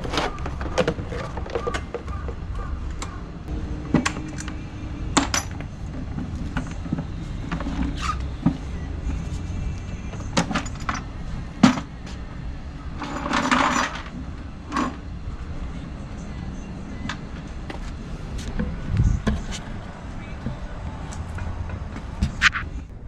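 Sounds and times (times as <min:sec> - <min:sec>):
tools and metal parts clinking: 0:00.0 - 0:03.2, 0:03.9 - 0:08.2, 0:10.1 - 0:12.2, 0:13.0 - 0:15.1.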